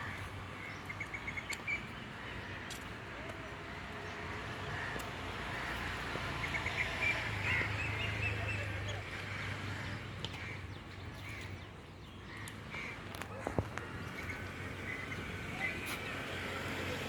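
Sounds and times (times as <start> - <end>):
birds calling: 3.9 - 17.0.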